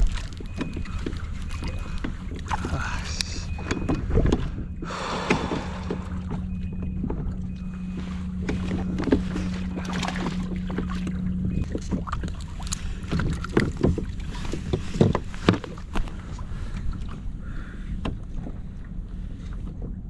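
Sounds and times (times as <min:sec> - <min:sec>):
steady low hum: 0:00.0 - 0:20.0
water sloshing against hull: 0:00.0 - 0:20.0
wind: 0:00.0 - 0:20.0.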